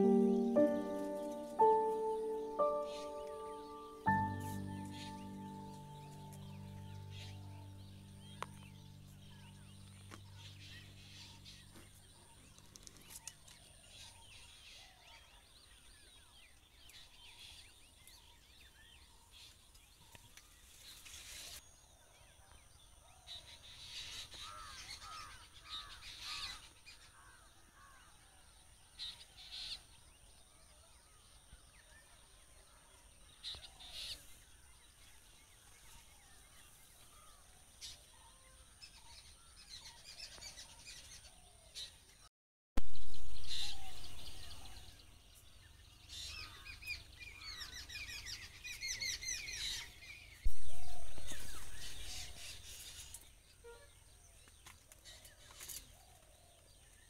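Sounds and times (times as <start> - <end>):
soft background music: 0.0 - 12.5, 50.5 - 52.5
birds calling: 0.0 - 15.0, 42.9 - 57.0.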